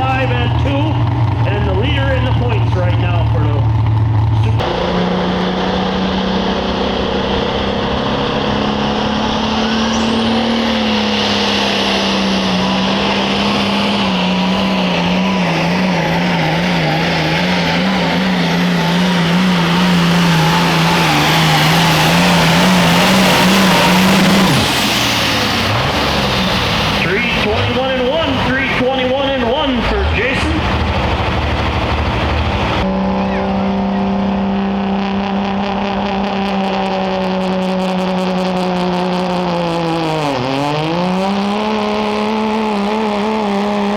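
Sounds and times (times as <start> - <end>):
engine running under load: 0.0 - 43.9
high steady whine: 6.0 - 34.3.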